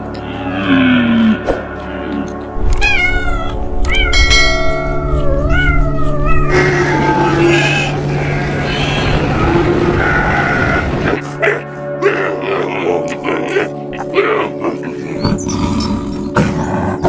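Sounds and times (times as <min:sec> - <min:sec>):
cat meowing: 0:02.7 - 0:04.2.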